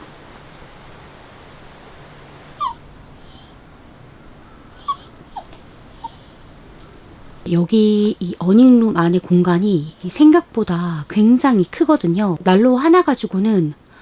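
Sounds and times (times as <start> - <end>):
dog whimpering: 2.6 - 3.6, 4.7 - 6.6.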